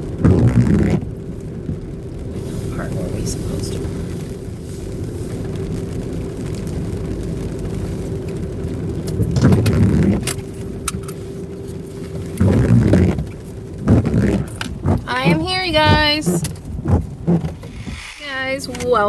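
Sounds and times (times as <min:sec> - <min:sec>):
car cabin low hum: 0:00.0 - 0:19.0
thumping rustling bursts: 0:09.2 - 0:10.4, 0:11.7 - 0:19.0
sharp clicks: 0:13.9 - 0:19.0.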